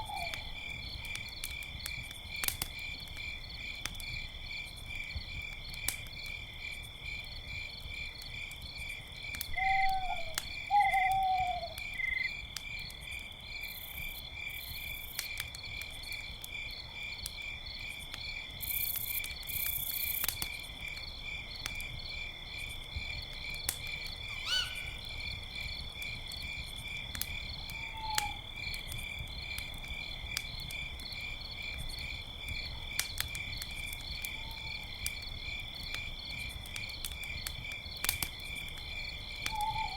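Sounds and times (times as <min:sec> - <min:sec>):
owl hooting: 0:00.0 - 0:00.5, 0:09.6 - 0:12.2, 0:24.3 - 0:25.1, 0:39.5 - 0:39.9
campfire crackling: 0:00.0 - 0:39.9
crickets chirping: 0:00.0 - 0:39.9.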